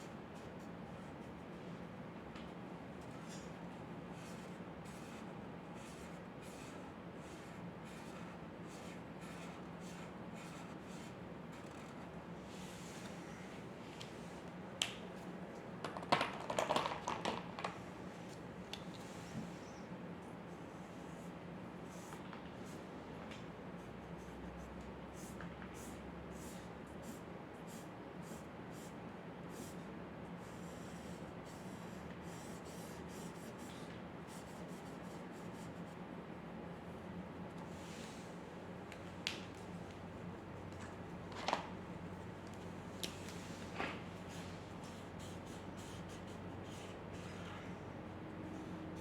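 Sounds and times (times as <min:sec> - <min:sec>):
scratching on paper: 0:04.2 - 0:12.2, 0:30.4 - 0:36.0, 0:44.3 - 0:47.6.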